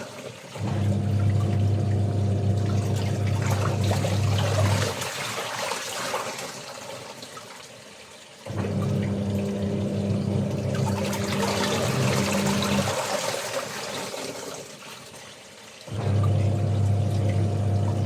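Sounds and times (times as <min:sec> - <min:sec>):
water running and splashing: 0:00.0 - 0:18.0
electric motor hum: 0:16.0 - 0:18.0.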